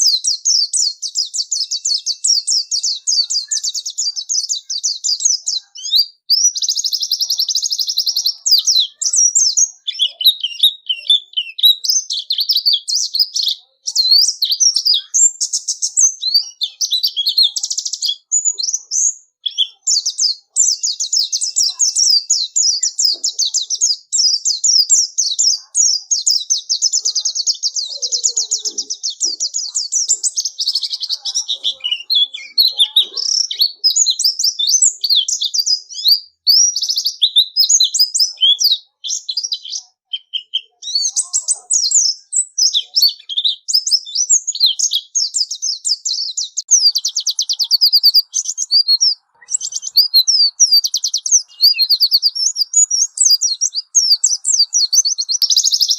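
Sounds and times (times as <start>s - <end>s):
bird twittering song: 0.0s - 55.9s.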